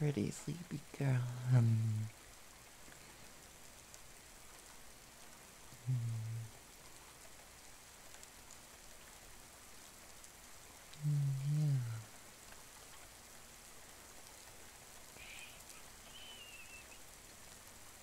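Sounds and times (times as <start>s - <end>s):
steady rain: 0.0s - 18.0s
man's deep voice murmuring: 0.9s - 2.1s, 5.8s - 6.5s, 11.0s - 12.1s.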